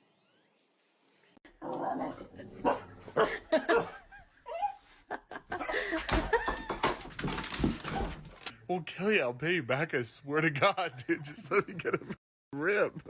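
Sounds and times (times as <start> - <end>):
people laughing: 3.2 - 7.0, 10.5 - 12.2
voice: 8.7 - 13.0.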